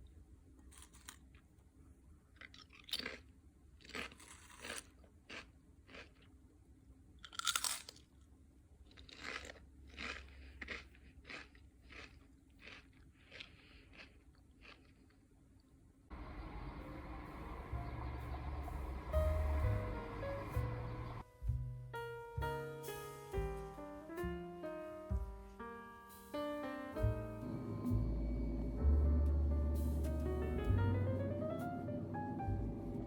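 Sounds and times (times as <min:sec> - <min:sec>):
crunchy food being chewed: 0:00.7 - 0:01.5, 0:02.3 - 0:06.4, 0:07.2 - 0:15.8.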